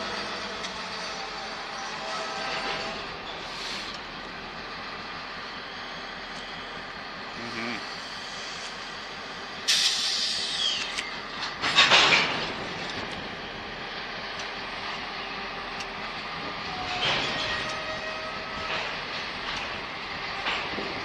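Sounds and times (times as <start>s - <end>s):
diesel locomotives rumbling: 0.0s - 21.0s.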